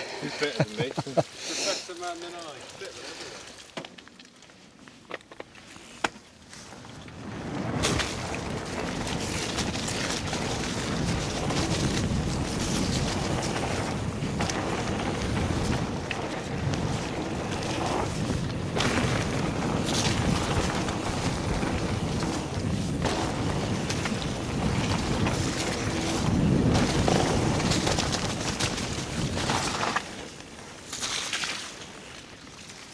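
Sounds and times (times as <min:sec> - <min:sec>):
bike tyre noise: 0:00.0 - 0:32.9
bike knocks and rattles: 0:05.0 - 0:30.3
wind rushing over microphone: 0:07.3 - 0:29.9.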